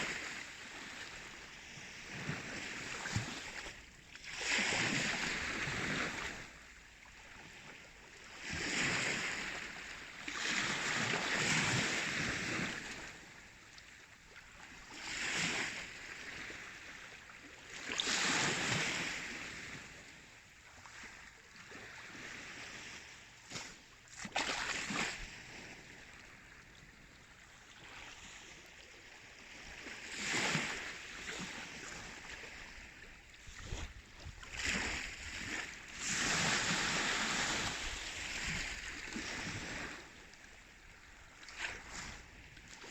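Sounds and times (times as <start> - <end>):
waves washing in: 17.8 - 20.2, 21.8 - 26.7, 27.7 - 40.4.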